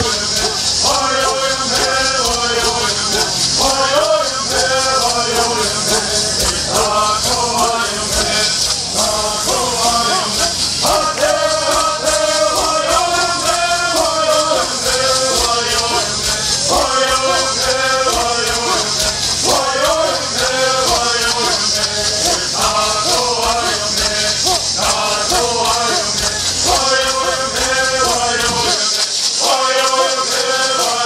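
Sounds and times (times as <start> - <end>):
gourd rattles shaken: 0.0 - 31.0
men chanting together: 0.0 - 31.0.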